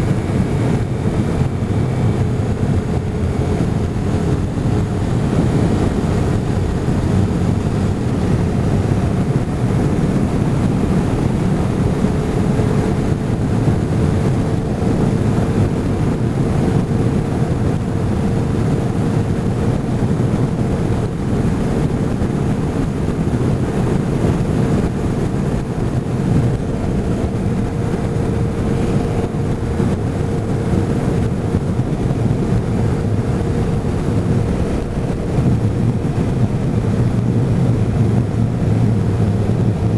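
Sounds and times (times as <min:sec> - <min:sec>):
faint steady whine: 0:00.0 - 0:39.9
motorcycle cruising: 0:00.0 - 0:39.9
wind buffeting microphone: 0:00.0 - 0:39.9.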